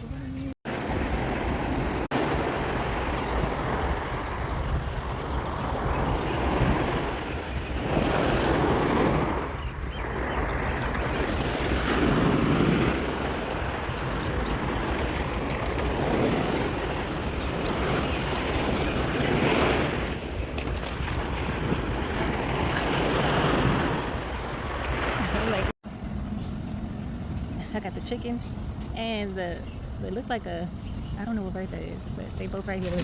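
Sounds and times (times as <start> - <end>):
wind buffeting microphone: 0.0 - 33.0
ocean surf: 0.7 - 25.8.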